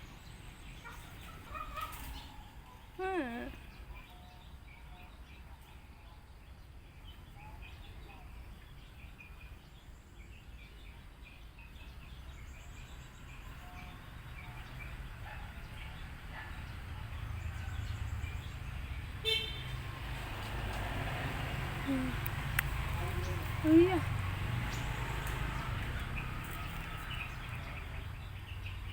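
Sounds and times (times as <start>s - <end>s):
small birds chirping: 0.0s - 28.9s.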